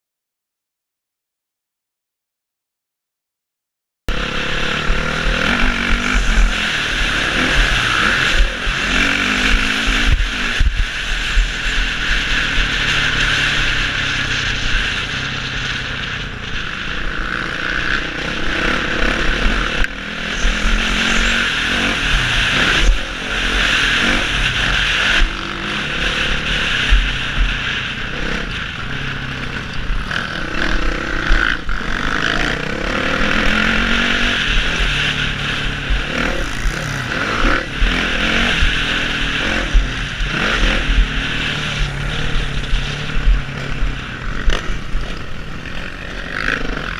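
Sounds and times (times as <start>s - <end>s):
motocross bike engine revving: 4.1s - 46.9s
wind rushing on microphone: 4.1s - 46.9s.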